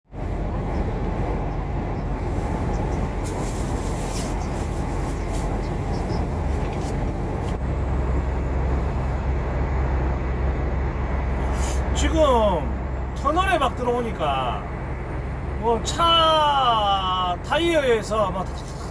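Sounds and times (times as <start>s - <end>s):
truck engine drone: 0.0s - 18.9s
tyre rumble on road: 0.4s - 7.6s.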